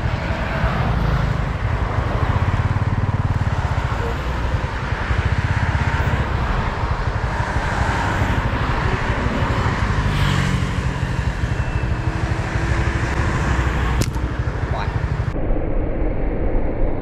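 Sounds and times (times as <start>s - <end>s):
rushing noise: 6.0s - 17.0s.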